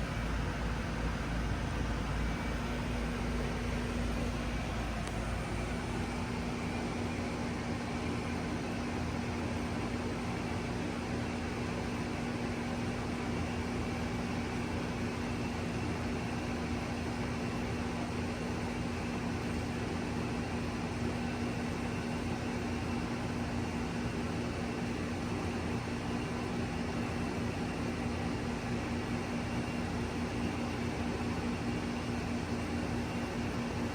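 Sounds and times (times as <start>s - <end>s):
constant low hum: 0.0s - 8.0s
heat pump fan whooshing: 0.0s - 33.9s.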